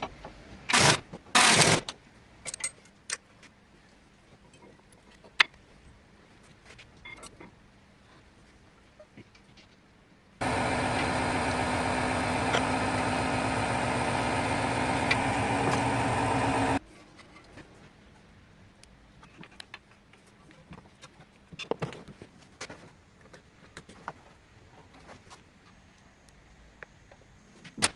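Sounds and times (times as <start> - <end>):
car engine running: 10.4 - 16.8.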